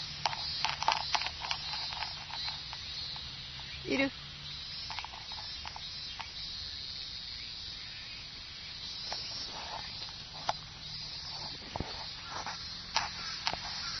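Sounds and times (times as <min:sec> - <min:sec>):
cicadas buzzing: 0:00.0 - 0:14.0
small clicks: 0:00.2 - 0:03.3, 0:04.9 - 0:06.4.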